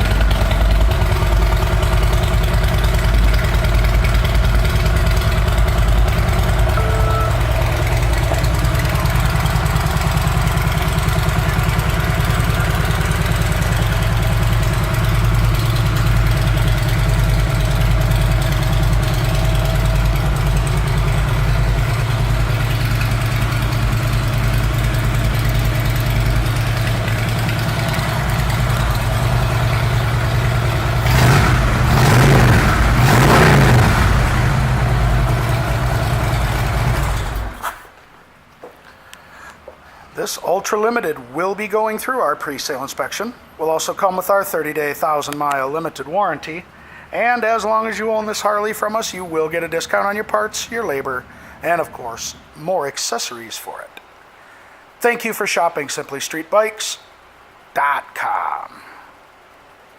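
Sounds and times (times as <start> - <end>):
motorcycle engine idling and revving: 0.0 - 37.9.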